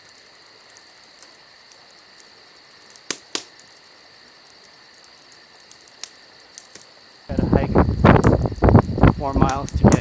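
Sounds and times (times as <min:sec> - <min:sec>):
insect chirring: 0:00.0 - 0:10.0
sharp clicks: 0:08.1 - 0:08.8, 0:09.4 - 0:10.0.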